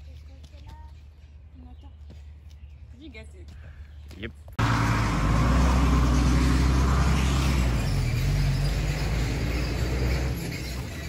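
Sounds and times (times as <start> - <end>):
road noise: 3.8 - 11.0
vehicle engine running: 4.6 - 11.0.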